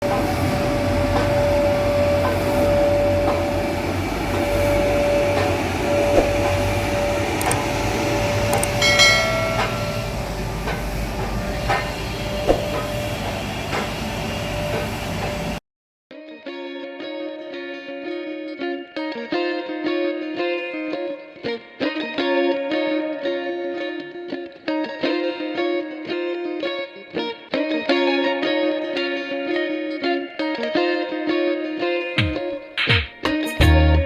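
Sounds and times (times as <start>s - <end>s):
train rumble: 0.0s - 15.6s
scattered knocks: 8.4s - 13.9s.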